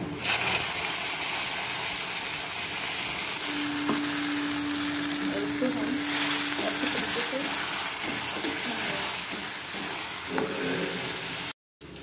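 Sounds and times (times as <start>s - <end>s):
spice paste sizzling in oil: 0.2s - 12.0s
steady low hum: 3.4s - 7.7s
metal spatula stirring: 3.5s - 10.6s.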